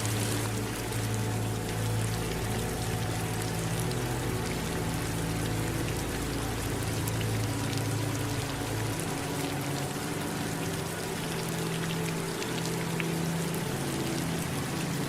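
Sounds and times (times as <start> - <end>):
running water pouring: 0.0 - 2.4
rain patter: 0.0 - 15.0.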